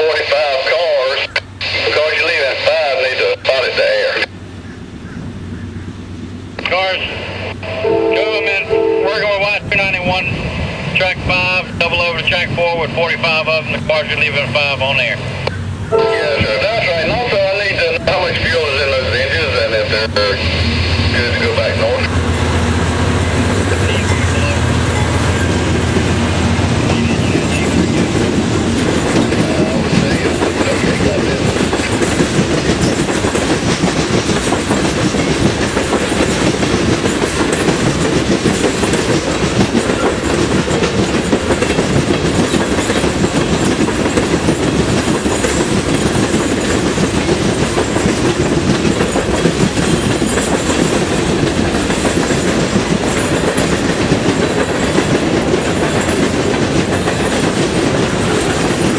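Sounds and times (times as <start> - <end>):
train wheels clacking over rail joints: 21.2 - 58.9.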